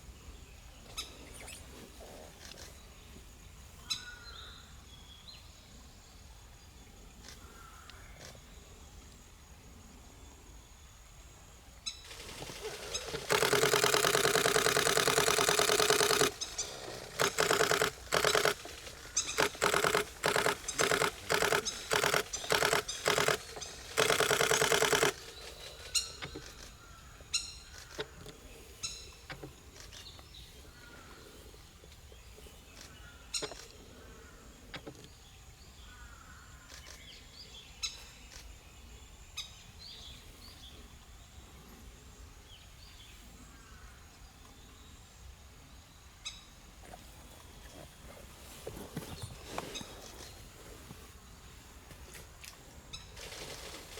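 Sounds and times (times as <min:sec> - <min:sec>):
bird chirps: 0:00.2 - 0:03.1, 0:11.8 - 0:30.8
camera shutter bursts: 0:12.1 - 0:26.8, 0:53.0 - 0:53.9.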